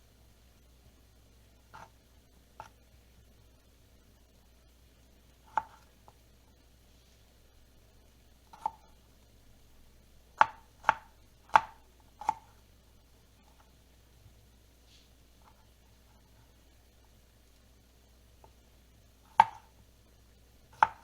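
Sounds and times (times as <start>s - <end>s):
knife chopping on cutting board: 5.5s - 5.9s, 8.5s - 8.9s, 10.4s - 12.5s, 19.3s - 19.7s, 20.7s - 21.0s.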